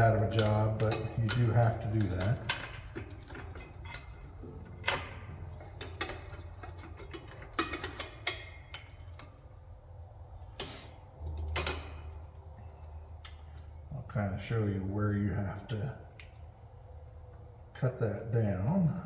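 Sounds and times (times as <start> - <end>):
metal tools clicking and knocking: 0.0 - 9.4, 11.3 - 12.4
low steady hum: 0.0 - 19.0.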